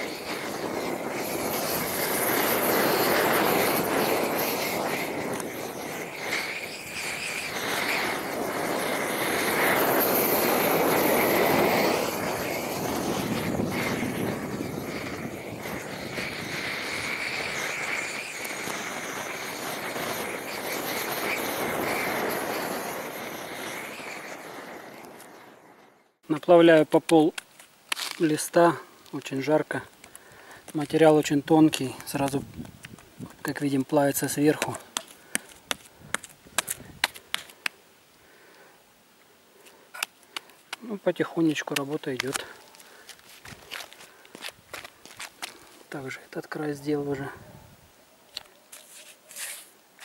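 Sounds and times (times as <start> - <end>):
gas torch roaring: 0.0 - 25.8.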